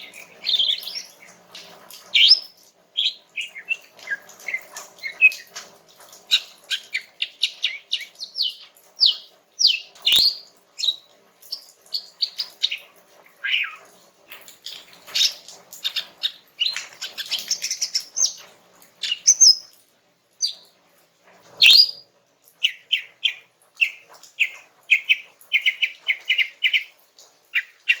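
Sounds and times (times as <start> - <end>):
bird chirping and whistling: 2.2 - 4.3, 7.7 - 11.0, 13.4 - 13.8, 19.1 - 19.6, 21.6 - 22.0.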